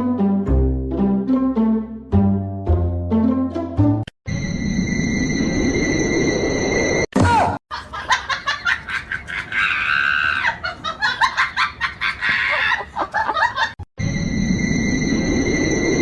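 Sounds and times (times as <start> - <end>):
high-pitched laughing and squealing: 7.7 - 13.8.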